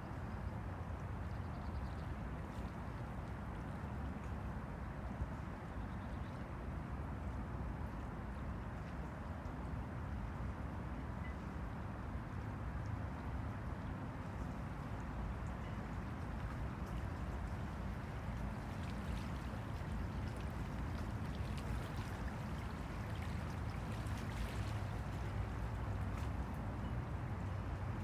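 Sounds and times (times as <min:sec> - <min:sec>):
light splashy ticks: 0:12.2 - 0:27.5
small waves lapping: 0:15.4 - 0:28.0.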